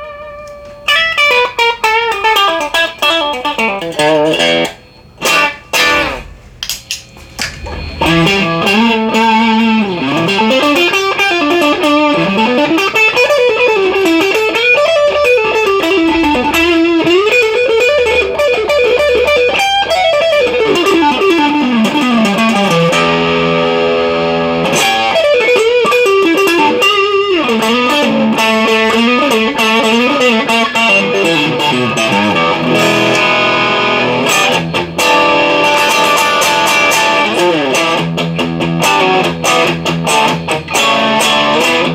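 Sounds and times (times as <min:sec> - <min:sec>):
solo electric guitar: 0:00.0 - 0:41.9.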